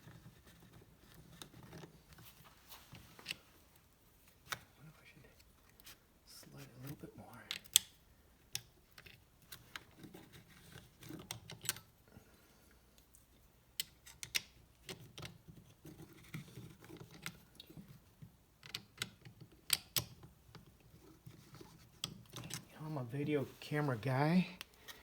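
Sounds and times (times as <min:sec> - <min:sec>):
soft handling noise: 0:00.0 - 0:07.8, 0:20.4 - 0:25.0
tools and parts clicking: 0:13.8 - 0:15.4, 0:21.7 - 0:22.7.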